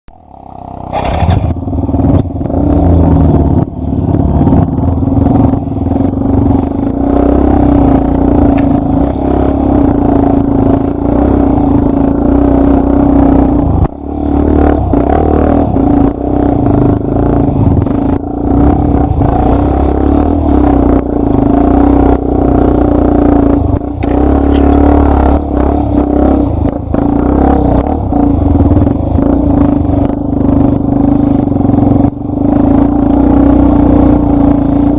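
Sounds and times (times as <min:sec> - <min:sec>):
motorcycle engine running: 0:00.1 - 0:34.9.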